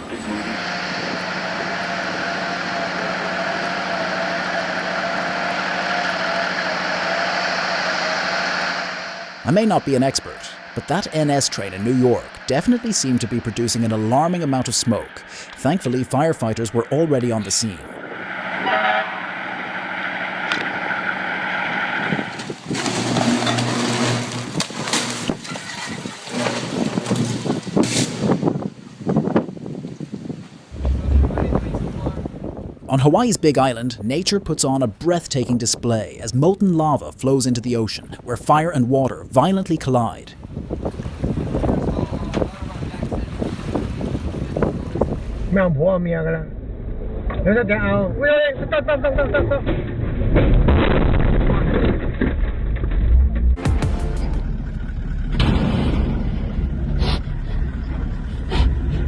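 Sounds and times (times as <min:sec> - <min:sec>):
low hum: 0:00.0 - 0:25.7, 0:30.7 - 0:32.9, 0:44.6 - 0:59.0
machine drone with whine: 0:00.0 - 0:28.1, 0:30.7 - 0:32.3, 0:46.2 - 0:59.0
train rumbling: 0:30.7 - 0:32.9.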